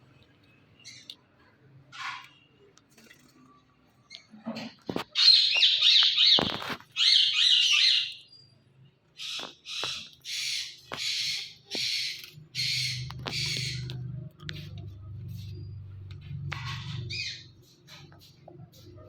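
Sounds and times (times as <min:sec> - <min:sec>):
parakeet squawks: 0:05.0 - 0:08.2, 0:09.2 - 0:13.9.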